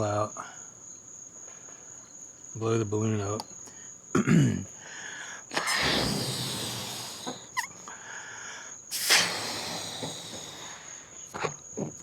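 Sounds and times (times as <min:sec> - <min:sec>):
crickets trilling: 0:00.0 - 0:12.0
person blowing into balloon: 0:05.5 - 0:07.8, 0:08.9 - 0:11.2.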